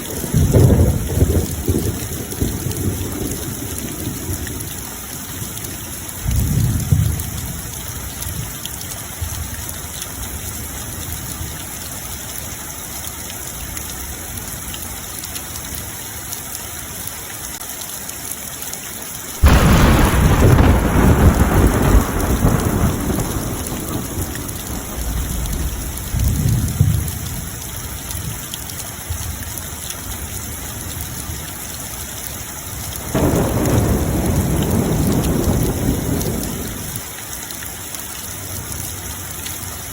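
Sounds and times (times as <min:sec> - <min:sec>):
thunder rumbling: 0:00.0 - 0:05.0, 0:06.2 - 0:07.8, 0:19.4 - 0:28.1, 0:33.0 - 0:37.1
steady rain falling: 0:00.0 - 0:39.9.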